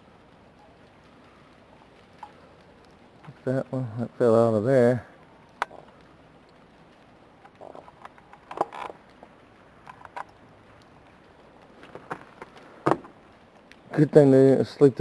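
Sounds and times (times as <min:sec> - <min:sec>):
faint background hiss: 0:00.0 - 0:15.0
ice crunching and tapping: 0:05.5 - 0:06.6, 0:07.4 - 0:13.8.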